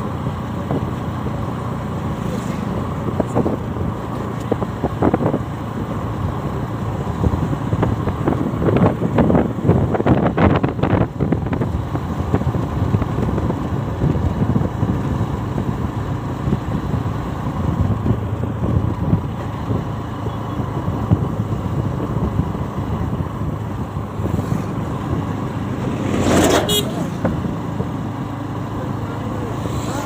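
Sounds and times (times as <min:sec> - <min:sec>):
wind rumble on microphone: 0:02.4 - 0:28.1.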